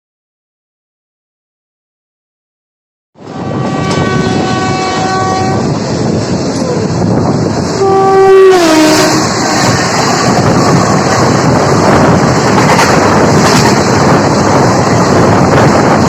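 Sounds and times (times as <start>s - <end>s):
locomotive horn: 3.2s - 5.8s, 7.8s - 9.8s
train rumble and wheel clatter: 3.2s - 16.0s.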